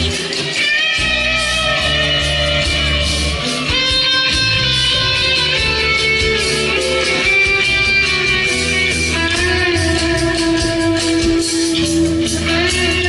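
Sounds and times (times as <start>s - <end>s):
guitar lines: 0.0s - 13.0s
bass notes: 1.0s - 3.4s, 4.2s - 13.0s.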